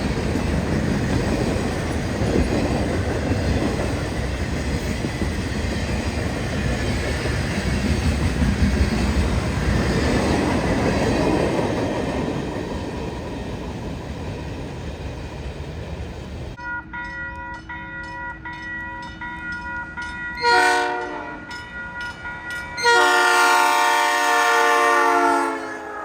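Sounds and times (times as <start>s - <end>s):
freight train rumbling: 0.0s - 16.6s, 18.4s - 26.0s
locomotive air horn blasts: 20.4s - 21.6s, 22.8s - 26.0s.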